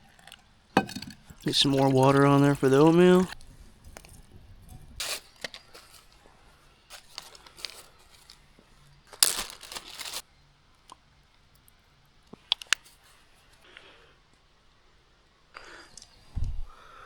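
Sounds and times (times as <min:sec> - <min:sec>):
packaging crinkling and tearing: 0:05.0 - 0:06.3, 0:06.9 - 0:08.5, 0:09.1 - 0:10.2.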